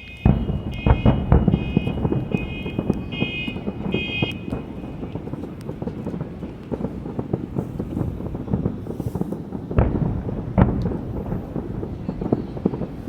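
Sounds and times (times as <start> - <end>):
electronic alarm beeping: 0.0 - 4.6
fireworks booming and crackling: 0.0 - 13.0.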